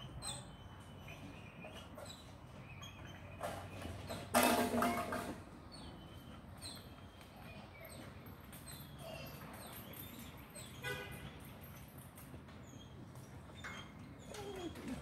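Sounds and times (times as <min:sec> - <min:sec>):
puppy yelp: 0:13.6 - 0:15.0.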